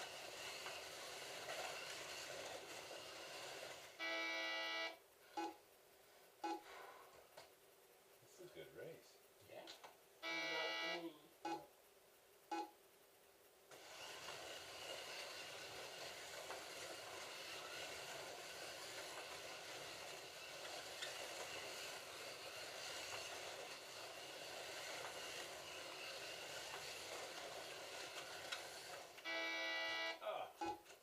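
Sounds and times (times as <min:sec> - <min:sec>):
slot car motors whining: 0:00.0 - 0:04.9, 0:13.7 - 0:30.2.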